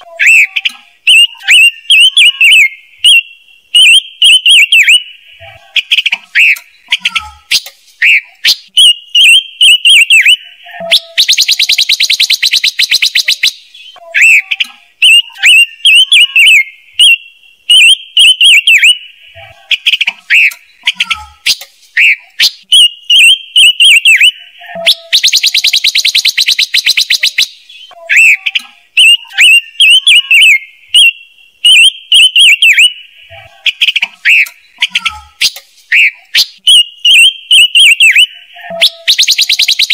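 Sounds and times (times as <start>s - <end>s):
bright whistled bird notes: 0.2s - 39.9s
rapid rattling bird trill: 5.8s - 17.2s, 19.7s - 31.1s, 33.7s - 39.9s.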